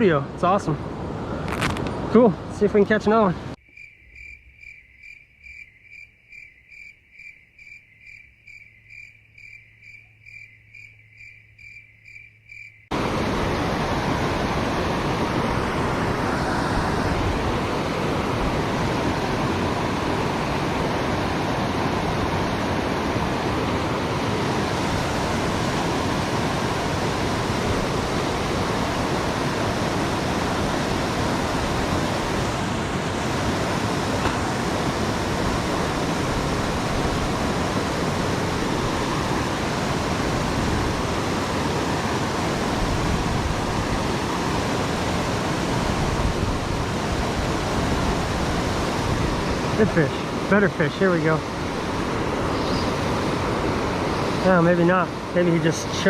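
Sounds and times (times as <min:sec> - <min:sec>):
cricket chirping: 0:03.6 - 0:13.0
waterfall rushing: 0:12.9 - 0:56.0.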